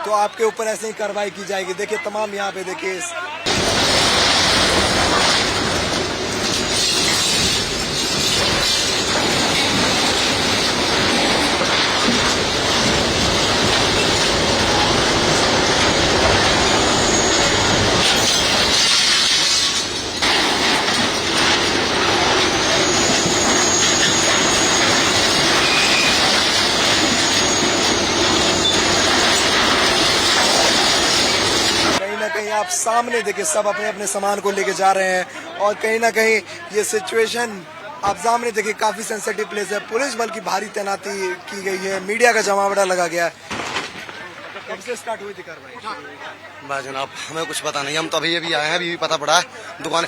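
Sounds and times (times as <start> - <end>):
bulldozer clanking and grinding: 3.5 - 32.0
high metal squeals: 3.5 - 32.0.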